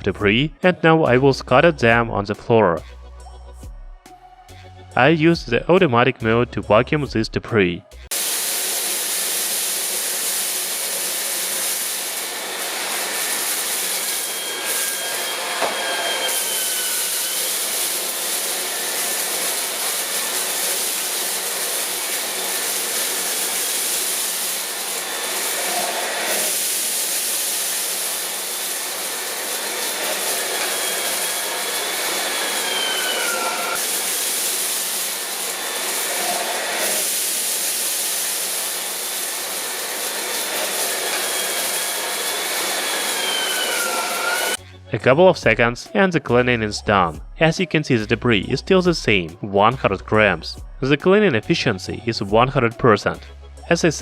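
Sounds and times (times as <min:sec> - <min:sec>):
stick vacuum motor whine: 0:08.7 - 0:44.6.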